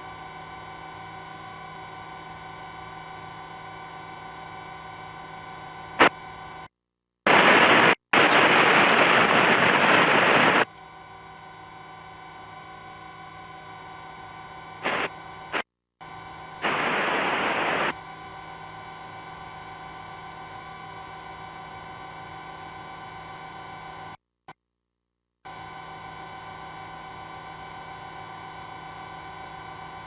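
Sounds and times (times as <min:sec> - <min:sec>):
helicopter cabin drone: 0:00.0 - 0:06.7, 0:07.3 - 0:24.2, 0:25.5 - 0:30.0
radio static hiss: 0:06.0 - 0:06.7, 0:07.3 - 0:10.7, 0:14.8 - 0:15.7, 0:16.6 - 0:18.0.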